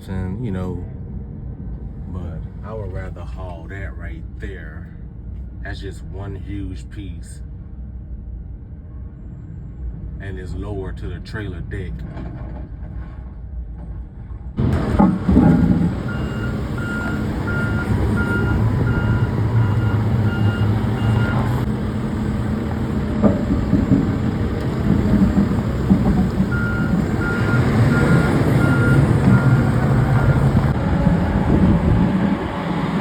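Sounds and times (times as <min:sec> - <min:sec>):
engine rumble: 0:00.0 - 0:33.0
backup alarm beeping: 0:14.8 - 0:33.0.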